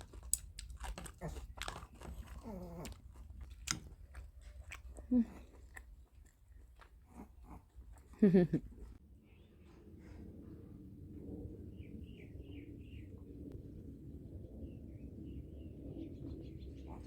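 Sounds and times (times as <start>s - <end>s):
person chewing crunchy food: 0.0s - 8.2s.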